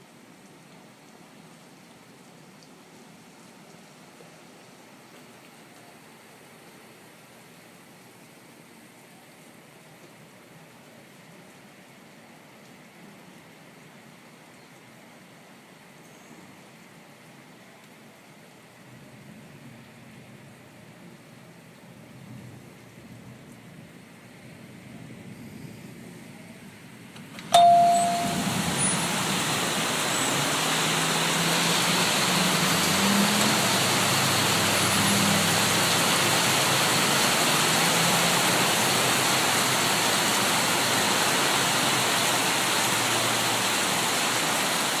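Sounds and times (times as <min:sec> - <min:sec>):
rain patter: 0:00.0 - 0:45.0
heavy rain rushing: 0:24.4 - 0:45.0
bell-like ring: 0:27.5 - 0:28.8.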